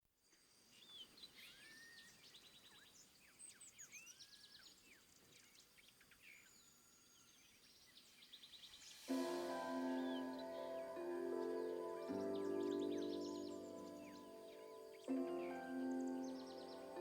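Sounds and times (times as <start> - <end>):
faint nightingale song: 0.1 - 17.0.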